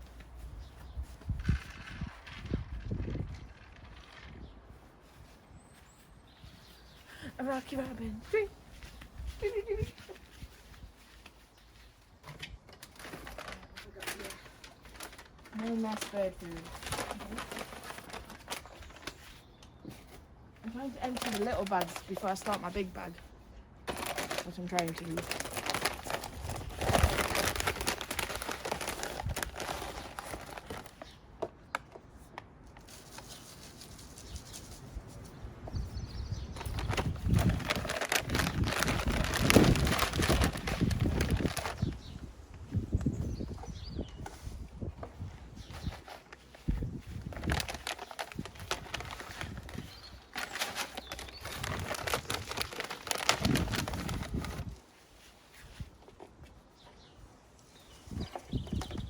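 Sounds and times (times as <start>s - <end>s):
plastic bag rustling and crinkling: 0.0s - 31.3s, 32.2s - 59.0s
bird food poured from bag: 13.0s - 19.4s, 23.9s - 31.2s, 36.5s - 42.2s, 47.0s - 54.8s.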